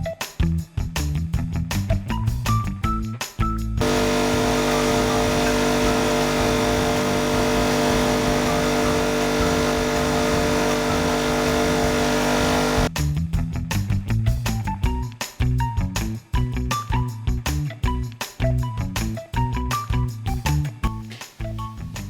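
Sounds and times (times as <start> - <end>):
power tool motor humming: 3.8 - 12.9.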